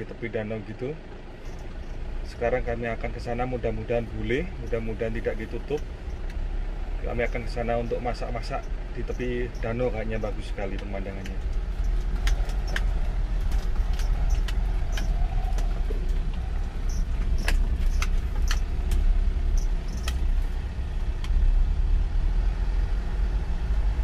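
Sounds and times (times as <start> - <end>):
engine and road rumble: 0.0 - 24.0
sharp clicks and rattles: 7.0 - 21.4.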